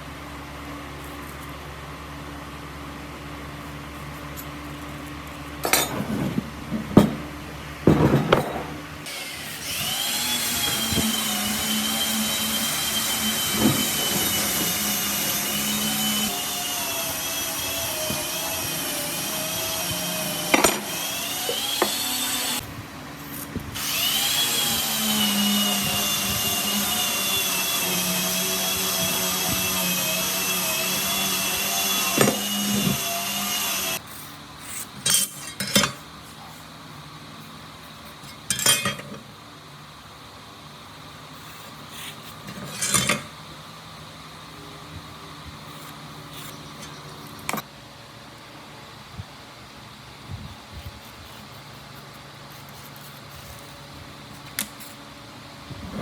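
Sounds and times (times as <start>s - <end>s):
knocks and clatters: 5.6s - 8.9s
power tool motor whining: 9.0s - 22.7s, 23.3s - 34.0s.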